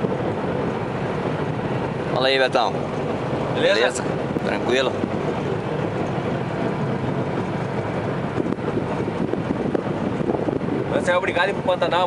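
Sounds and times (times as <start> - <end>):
boat engine hum: 0.0 - 12.0.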